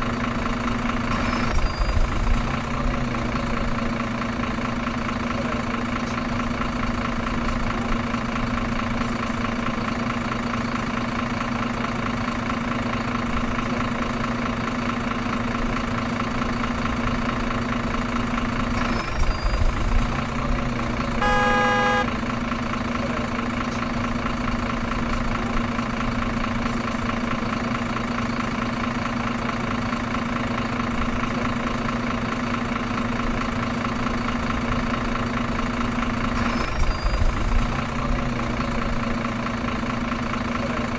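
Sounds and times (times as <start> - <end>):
truck engine droning: 0.0 - 40.9
truck horn: 21.0 - 22.4.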